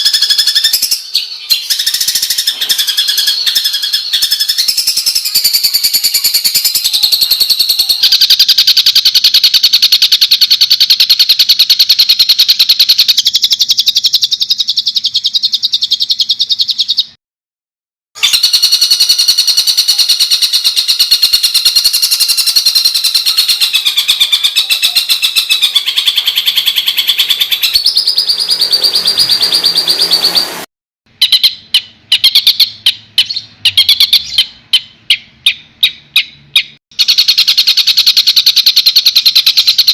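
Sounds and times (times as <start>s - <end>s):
songbird harsh rapid trills: 0.0s - 16.9s, 18.2s - 39.9s.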